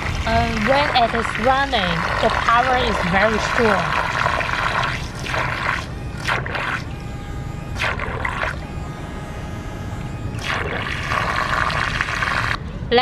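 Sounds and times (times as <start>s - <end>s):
propellers churning water: 0.0s - 7.0s, 7.7s - 8.8s, 10.3s - 12.6s
electric motors whining: 0.0s - 13.0s.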